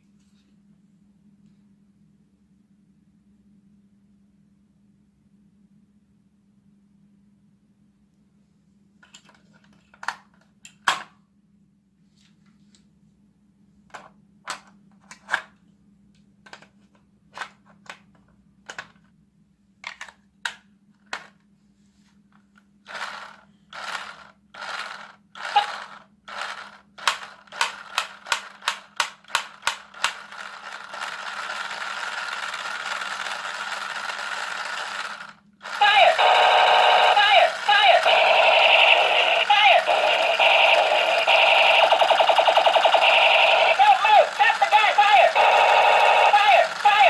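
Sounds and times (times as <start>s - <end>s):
toy gun clicks: 24.9s - 47.0s
electronic shooting sound effect: 35.8s - 47.0s.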